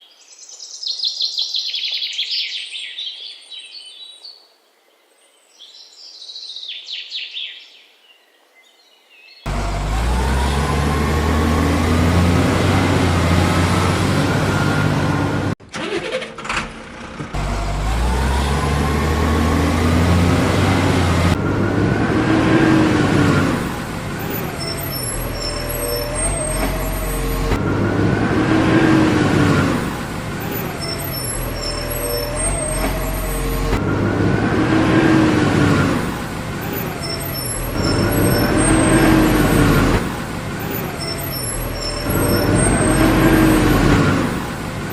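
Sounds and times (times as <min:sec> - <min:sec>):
truck engine revving: 0:09.5 - 0:44.9.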